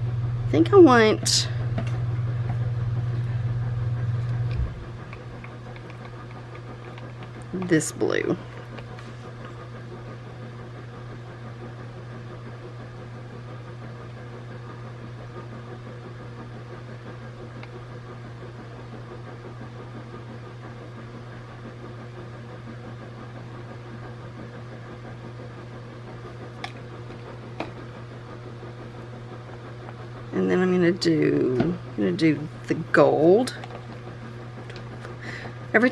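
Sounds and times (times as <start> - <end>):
motor humming: 0.0 - 11.2, 26.1 - 35.9.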